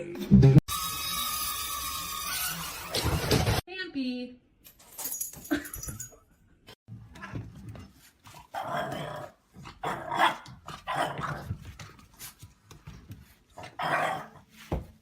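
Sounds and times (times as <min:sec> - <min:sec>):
dog barking roughly: 0:09.8 - 0:11.4.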